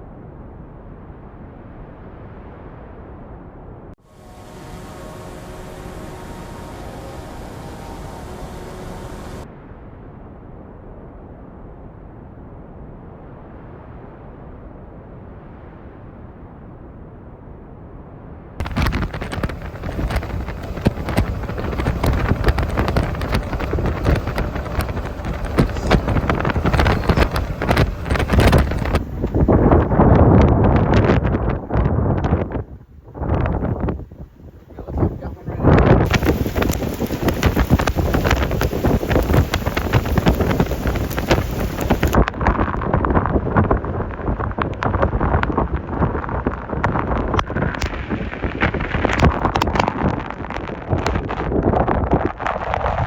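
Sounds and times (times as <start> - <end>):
storm wind buffeting microphone: 4.0 - 11.1, 18.6 - 53.0.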